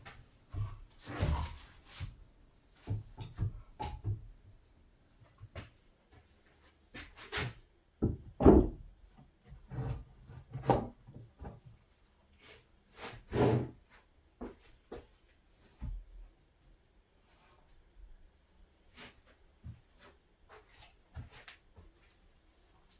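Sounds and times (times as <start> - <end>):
wooden parts knocking together: 8.0 - 8.8.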